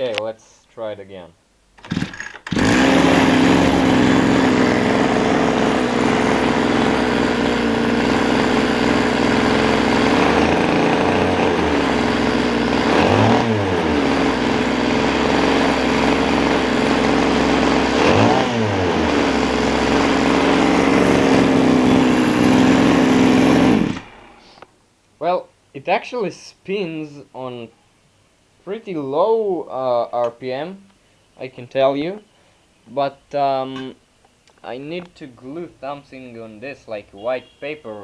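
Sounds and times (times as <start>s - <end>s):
small two-stroke engine revving: 1.8s - 24.6s.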